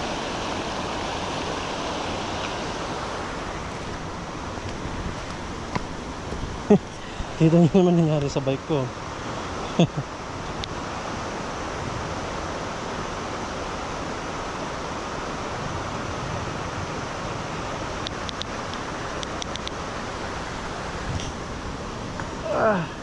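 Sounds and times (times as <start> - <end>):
river water rushing: 0.0 - 23.0
light clicks: 18.0 - 19.8.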